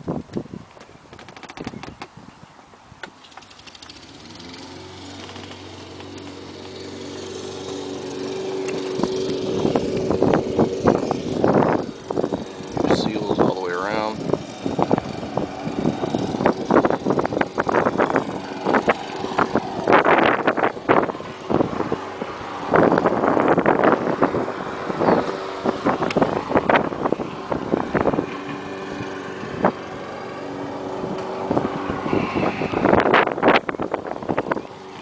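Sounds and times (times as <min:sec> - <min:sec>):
buffeting and knocking noises: 0:00.0 - 0:35.0
car engine idling: 0:03.3 - 0:24.5.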